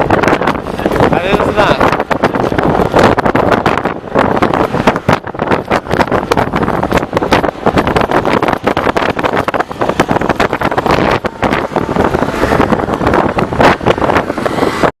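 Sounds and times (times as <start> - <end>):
bike running noise: 0.0 - 15.0
wind buffeting microphone: 0.0 - 15.0.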